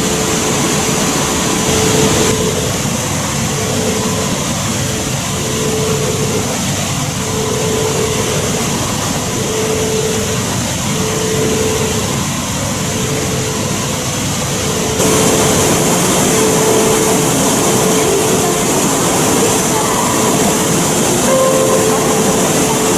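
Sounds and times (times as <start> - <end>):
faint hum: 0.0 - 22.9
train rushing noise inside car: 13.5 - 22.9.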